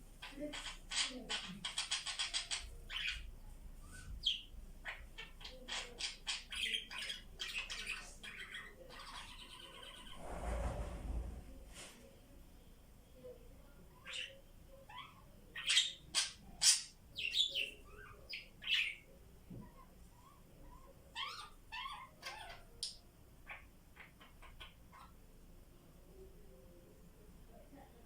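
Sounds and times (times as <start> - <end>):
budgies chirping: 0.2 - 10.2, 14.0 - 25.2.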